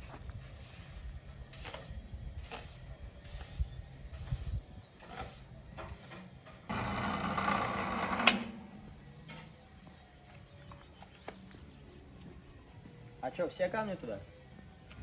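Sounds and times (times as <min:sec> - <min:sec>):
loud steady machine: 0:06.7 - 0:08.7.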